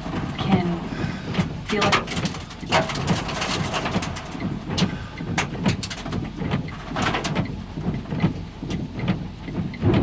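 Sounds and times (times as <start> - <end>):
wind and hard rain battering car: 0.0 - 10.0.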